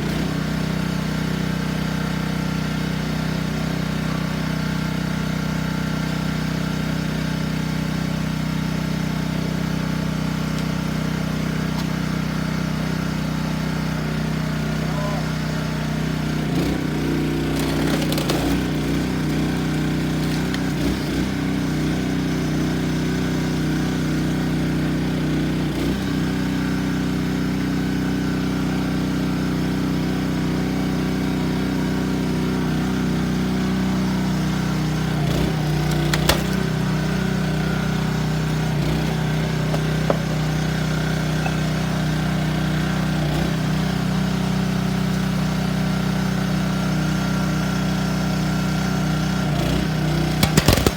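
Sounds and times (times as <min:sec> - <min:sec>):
small petrol engine running: 0:00.0 - 0:50.9
wood cracking: 0:16.6 - 0:21.3, 0:35.2 - 0:40.7, 0:50.0 - 0:50.9.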